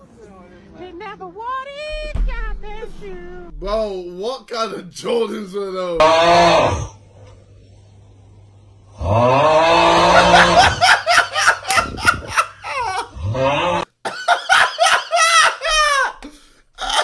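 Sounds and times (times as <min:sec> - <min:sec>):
man laughing wheezily: 0:09.9 - 0:13.4, 0:14.1 - 0:17.0.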